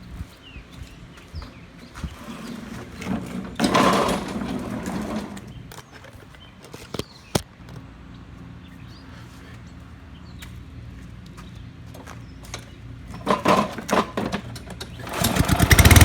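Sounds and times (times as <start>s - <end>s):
lawn mower engine starting and running: 1.8s - 8.8s, 11.8s - 16.0s.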